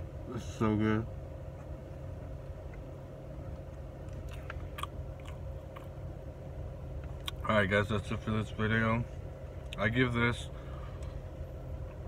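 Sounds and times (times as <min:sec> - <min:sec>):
low hum inside a car: 0:00.0 - 0:12.0
person chewing: 0:04.1 - 0:06.0.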